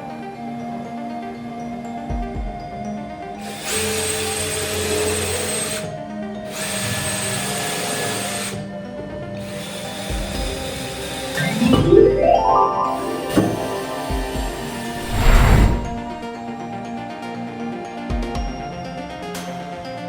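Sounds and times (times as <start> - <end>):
background music: 0.0 - 16.3.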